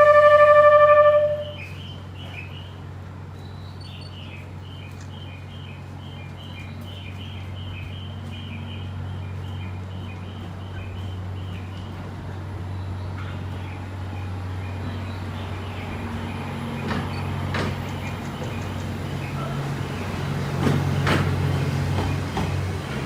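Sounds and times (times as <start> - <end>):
train music horn melody: 0.0 - 1.8
train low hum: 0.0 - 23.0
birds chirping: 1.3 - 23.0.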